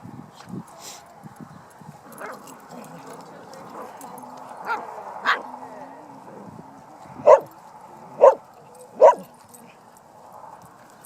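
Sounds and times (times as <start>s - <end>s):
dog barking: 4.6s - 5.5s, 7.2s - 9.3s.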